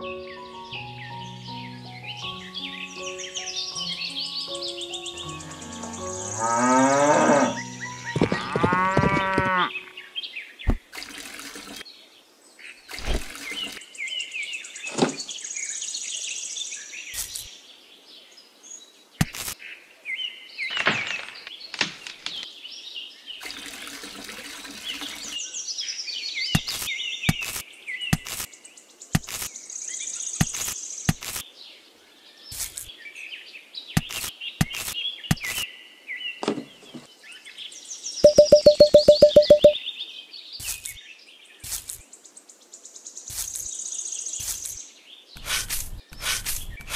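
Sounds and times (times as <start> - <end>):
birds chirping: 0.0 - 11.9, 12.6 - 17.6, 33.6 - 40.0
cow mooing: 5.5 - 7.6, 8.3 - 9.8.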